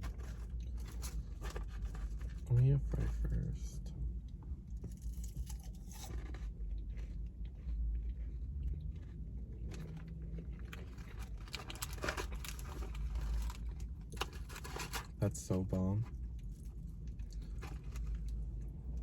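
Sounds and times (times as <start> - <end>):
person chewing fries: 0.0 - 3.4, 4.2 - 15.2, 16.1 - 19.0
small crunches: 4.8 - 15.2.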